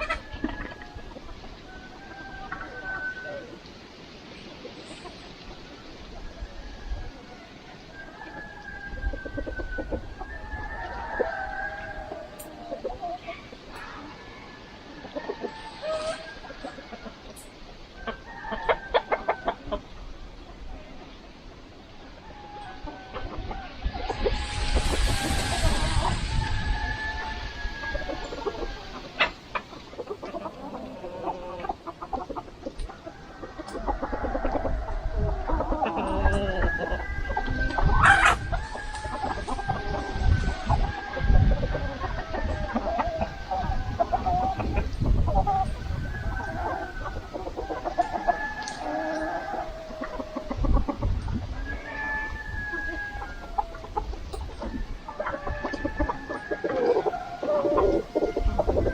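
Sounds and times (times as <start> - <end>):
chickens clucking: 0.0 - 58.9
rooster crowing: 1.7 - 3.5, 6.4 - 12.7, 22.3 - 29.4, 45.8 - 50.7, 51.5 - 54.0, 54.6 - 58.9.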